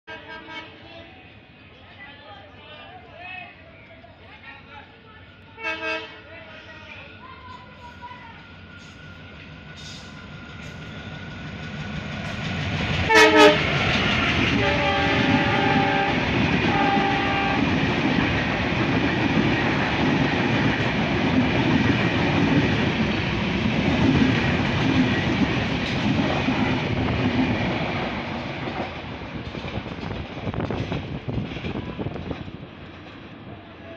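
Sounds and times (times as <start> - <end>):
locomotive horn blasts: 0.1 - 0.8, 5.6 - 6.2, 13.1 - 13.6, 14.6 - 17.7
train wheels rumbling on rail: 4.8 - 33.9.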